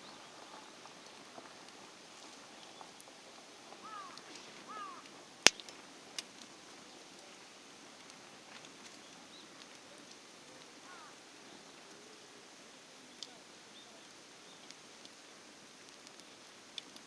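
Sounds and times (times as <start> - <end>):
campfire crackling: 0.0 - 17.0
outdoor hiss: 0.0 - 17.0
sharp fire pops: 5.4 - 6.4.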